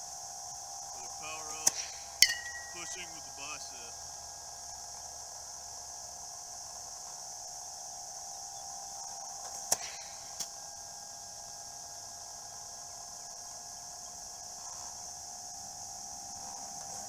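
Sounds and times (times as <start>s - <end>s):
bat striking baseball: 2.2s - 3.1s.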